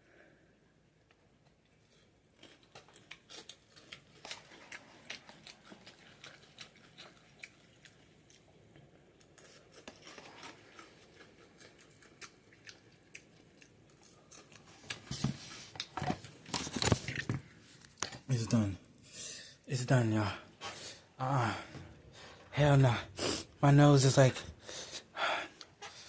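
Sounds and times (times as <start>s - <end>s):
chewing noodles wet mouth clicks: 10.7s - 14.6s.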